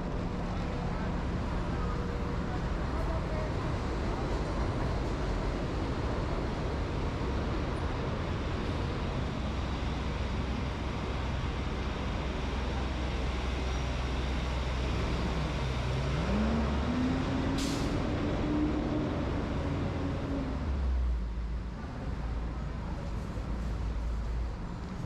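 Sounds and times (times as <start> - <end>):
road traffic hum: 0.0 - 25.0
vehicle engine pulling away: 14.8 - 20.8.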